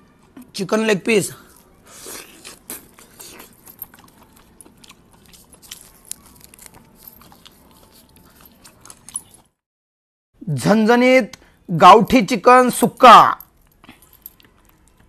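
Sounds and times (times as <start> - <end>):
man biting and chewing: 1.6 - 9.6.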